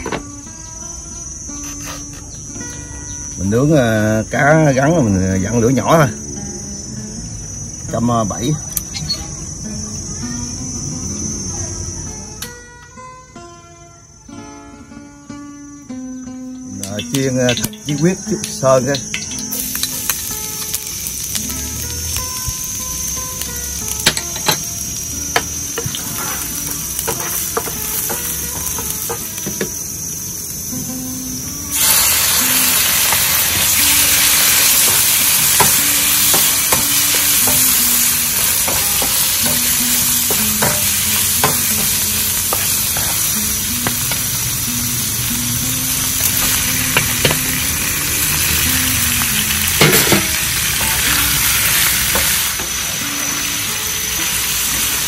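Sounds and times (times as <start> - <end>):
meat sizzling in hot oil: 16.9 - 55.0.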